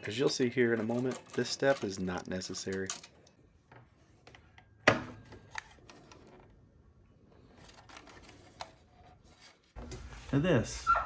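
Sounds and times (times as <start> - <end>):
plastic parts clicking and clattering: 0.0 - 4.5
rustling and scraping: 7.3 - 10.9.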